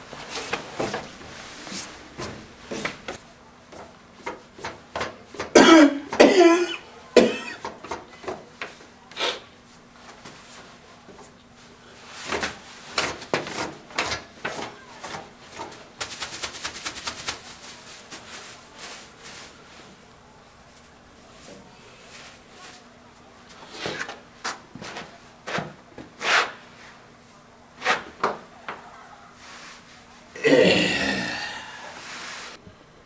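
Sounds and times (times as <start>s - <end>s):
person clearing throat: 5.6s - 7.6s, 30.4s - 31.9s
person coughing: 5.6s - 7.6s, 30.4s - 31.9s.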